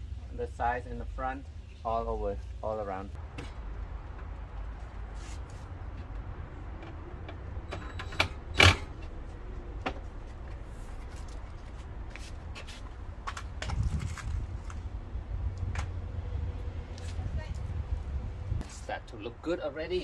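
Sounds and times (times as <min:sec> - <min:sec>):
steady low rumble: 0:09.0 - 0:19.5.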